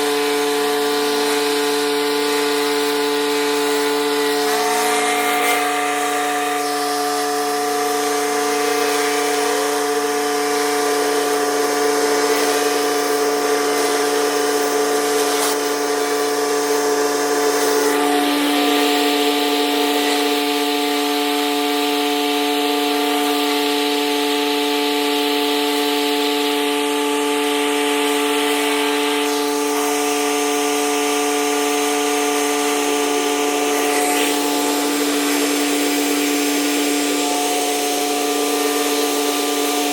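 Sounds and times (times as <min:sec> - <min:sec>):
pressure washer running: 0:00.0 - 0:39.9
high-pressure water spray hiss: 0:02.4 - 0:20.6.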